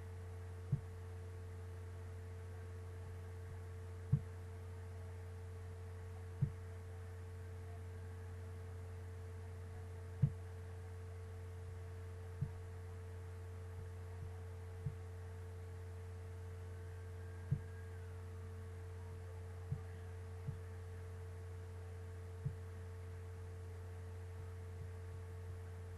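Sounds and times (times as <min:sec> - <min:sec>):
low hum: 0:00.0 - 0:25.9
soft low knocks: 0:00.6 - 0:01.0, 0:03.4 - 0:04.4, 0:06.4 - 0:06.8, 0:10.2 - 0:10.6, 0:12.4 - 0:12.7, 0:17.2 - 0:18.0, 0:22.4 - 0:22.7.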